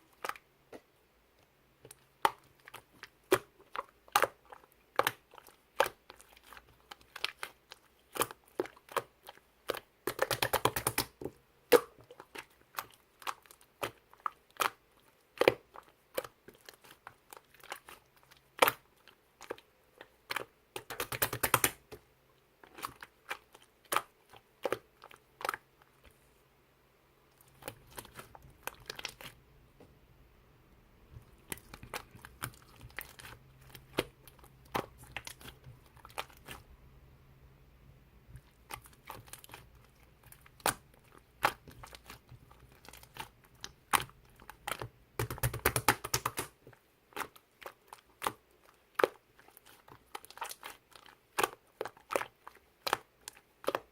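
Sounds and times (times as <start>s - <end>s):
sharp clicks and taps: 10.1s - 11.9s, 20.8s - 21.9s, 44.7s - 46.5s.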